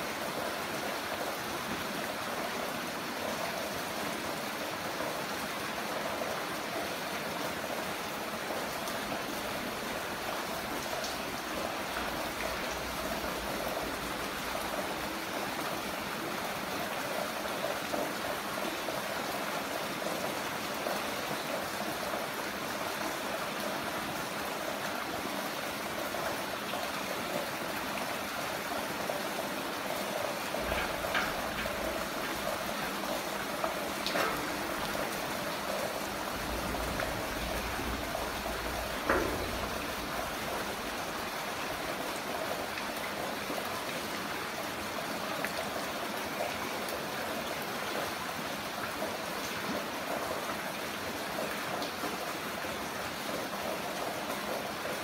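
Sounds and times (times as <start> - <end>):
water dripping: 8.9 - 17.2, 29.8 - 44.8
heavy rain hissing: 19.3 - 43.3.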